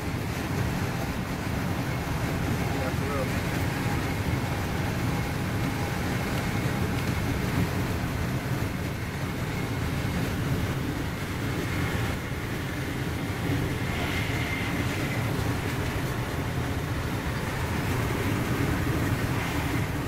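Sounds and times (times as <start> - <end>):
train rumbling inside coach: 0.0 - 20.0.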